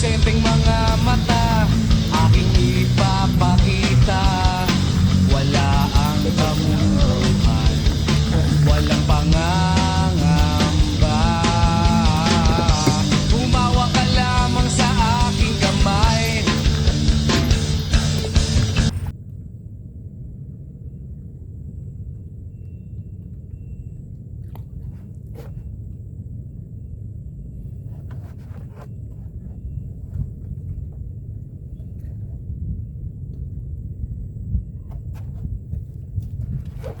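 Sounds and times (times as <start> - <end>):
handling knocks and clicks: 0.0 - 19.1
wind rumble on microphone: 0.0 - 37.0.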